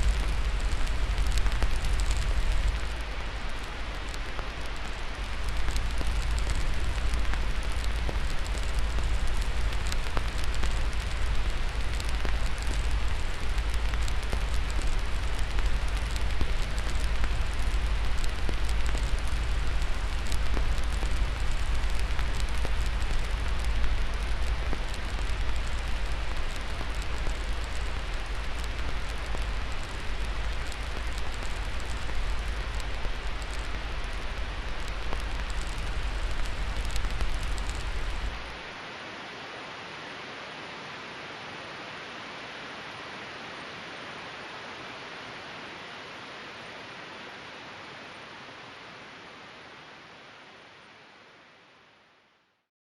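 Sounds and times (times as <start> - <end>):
fire crackling and popping: 0.0 - 38.8
steady hiss: 0.0 - 52.7.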